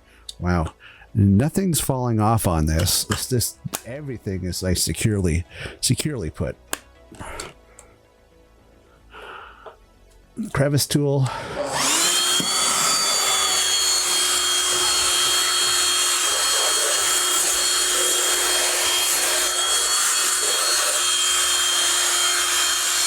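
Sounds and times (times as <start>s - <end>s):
handheld vacuum whining: 11.2s - 23.0s.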